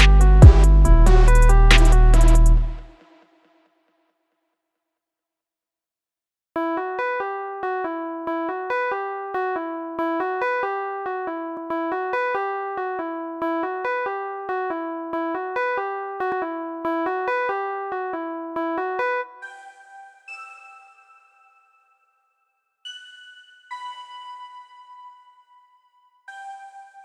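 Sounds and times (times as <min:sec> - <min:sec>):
electric piano keyboard melody: 0:06.6 - 0:21.8.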